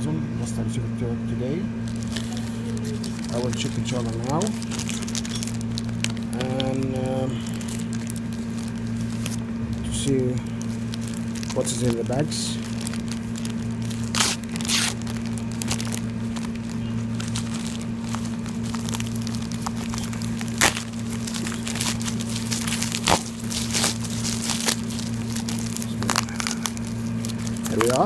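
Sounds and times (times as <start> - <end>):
steady low hum: 0.0 - 28.0
plastic packaging crinkling: 1.8 - 28.0
sharp rips of plastic: 12.8 - 28.0.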